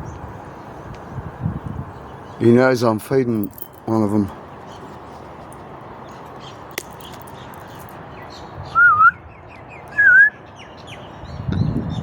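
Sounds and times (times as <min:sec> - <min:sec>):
small birds chirping: 0:00.0 - 0:03.0, 0:03.8 - 0:12.0
short wavering whistles: 0:08.7 - 0:09.2, 0:09.9 - 0:10.4.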